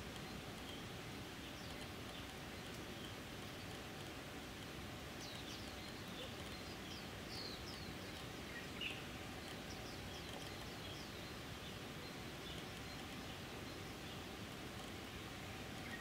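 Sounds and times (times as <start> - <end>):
steady low hiss: 0.0 - 16.0
bird chirping: 5.2 - 14.4, 15.8 - 16.0.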